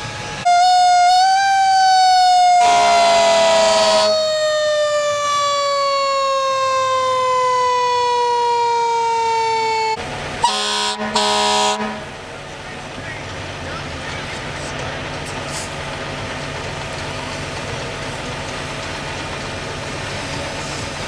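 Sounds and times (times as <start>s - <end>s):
mechanical siren winding down: 0.0s - 10.0s
air horn blasts: 2.4s - 4.3s, 10.4s - 12.2s.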